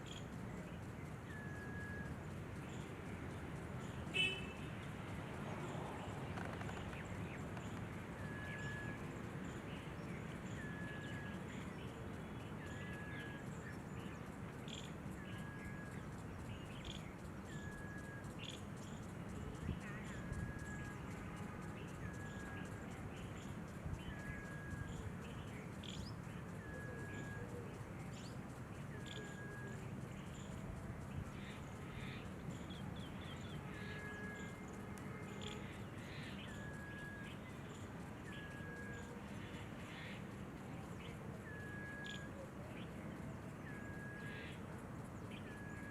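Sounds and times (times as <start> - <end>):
bird call repeated note: 4.1 - 4.6.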